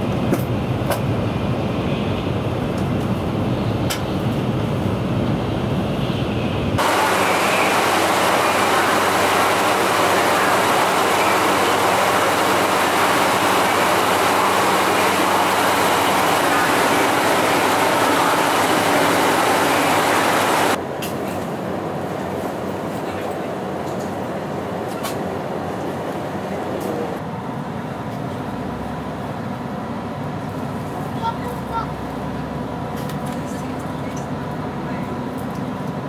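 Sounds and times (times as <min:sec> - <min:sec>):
train car interior ambience: 0:00.0 - 0:36.0
train rumble and hiss: 0:00.0 - 0:36.0.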